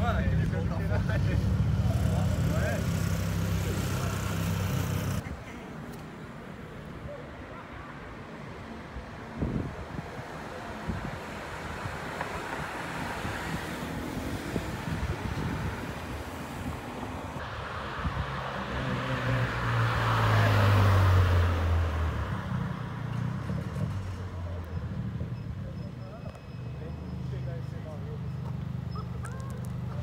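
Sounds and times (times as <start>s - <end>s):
street noise: 0.0s - 30.0s
wind on microphone: 9.3s - 18.6s.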